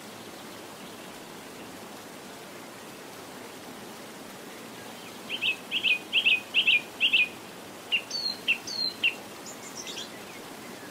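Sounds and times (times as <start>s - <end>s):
steady background hiss: 0.0s - 10.9s
small bird chirping: 7.9s - 10.2s.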